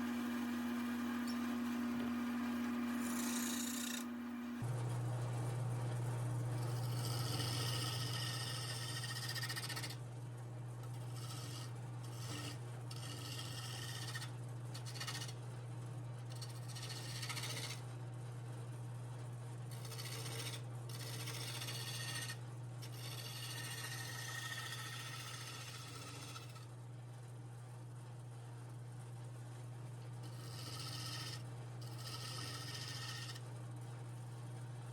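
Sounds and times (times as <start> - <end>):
wood lathe motor humming: 0.0 - 4.7, 6.6 - 10.0, 10.8 - 15.3, 16.3 - 17.8, 19.7 - 26.6, 30.2 - 33.4
high rasping of wood turning: 2.9 - 4.1, 6.8 - 10.0, 11.0 - 15.4, 16.3 - 17.8, 19.7 - 26.6, 30.3 - 33.4.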